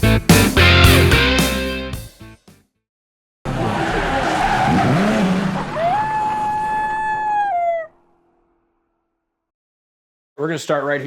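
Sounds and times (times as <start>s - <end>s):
harsh rush of noise: 3.5s - 8.0s
coyote howl: 3.9s - 8.2s.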